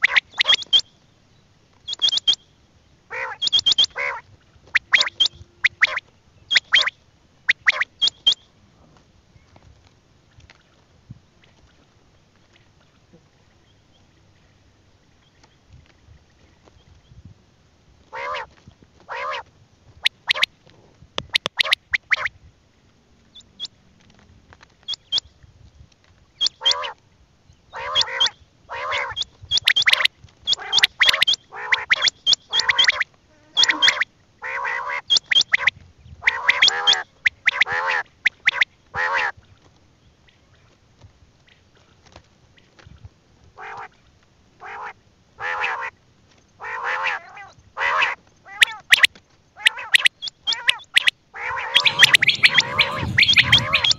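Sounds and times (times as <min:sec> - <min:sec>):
bird calling in harsh notes: 0:03.1 - 0:04.2, 0:04.8 - 0:06.9, 0:49.7 - 0:53.9.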